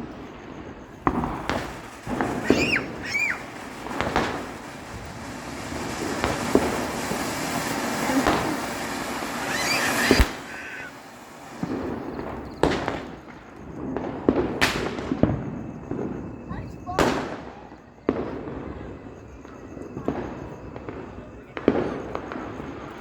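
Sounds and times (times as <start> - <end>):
firecracker bang: 0.0 - 23.0
firecracker hissing and crackling: 0.0 - 23.0
sharp cracks: 1.1 - 11.6.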